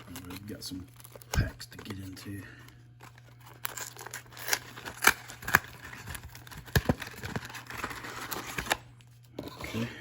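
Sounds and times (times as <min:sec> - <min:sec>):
packaging rustling: 0:00.0 - 0:08.8
cardboard packs snapping and crackling: 0:03.0 - 0:08.8.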